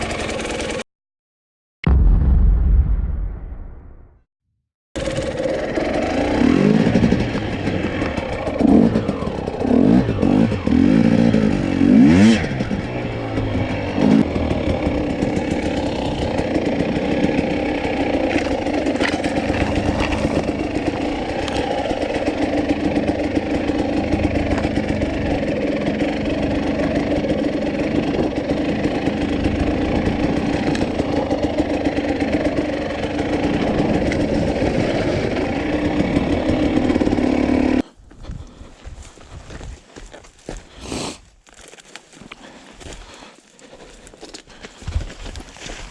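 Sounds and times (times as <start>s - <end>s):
motorcycle engine revving: 0.0s - 0.8s, 5.0s - 37.9s.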